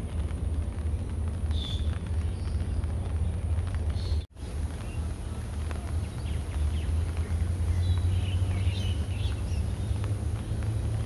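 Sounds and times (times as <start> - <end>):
low outdoor rumble: 0.0 - 11.0
small birds chirping: 0.9 - 11.0.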